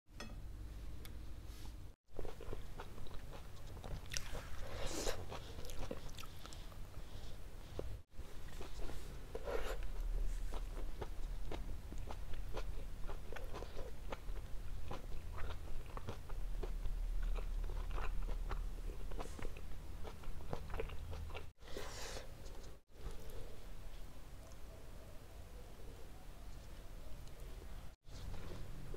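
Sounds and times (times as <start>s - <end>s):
person chewing with mouth clicks: 2.2s - 6.7s, 8.5s - 21.5s.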